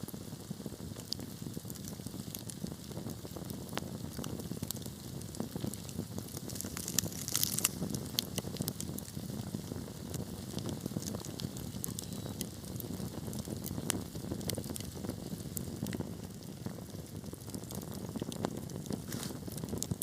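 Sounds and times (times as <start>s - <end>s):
fire crackling and popping: 0.0s - 20.0s
low rumble of flames: 0.0s - 20.0s.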